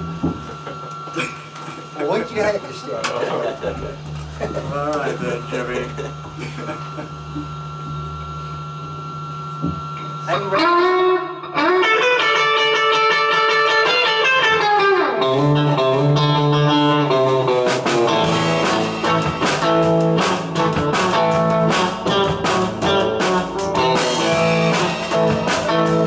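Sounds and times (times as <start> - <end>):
guitar-led rock music: 10.6 - 26.0.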